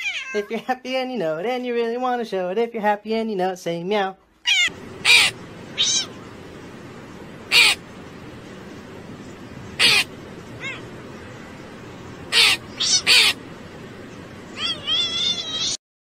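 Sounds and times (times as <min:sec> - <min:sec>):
crow cawing: 0:04.5 - 0:06.2, 0:07.5 - 0:07.9, 0:09.8 - 0:11.0, 0:12.2 - 0:13.5.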